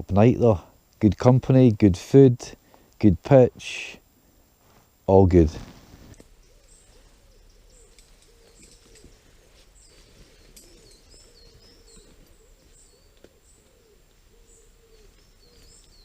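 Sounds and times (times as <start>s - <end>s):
birds chirping and twittering: 4.0s - 16.0s
low cooing: 6.2s - 16.0s.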